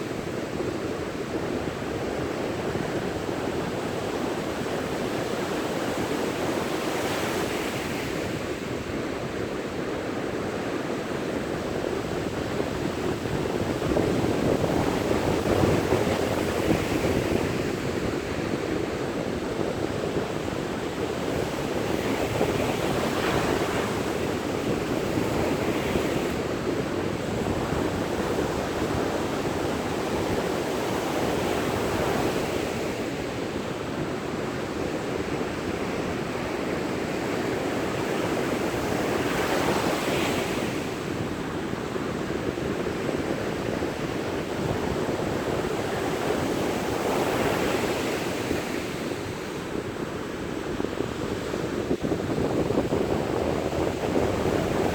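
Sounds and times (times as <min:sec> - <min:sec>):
sea waves breaking on shore: 0:10.2 - 0:54.9
wind buffeting microphone: 0:11.4 - 0:54.9.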